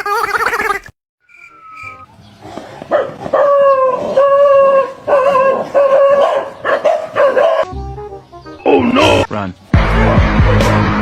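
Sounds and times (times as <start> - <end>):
dog howling: 2.9 - 7.6.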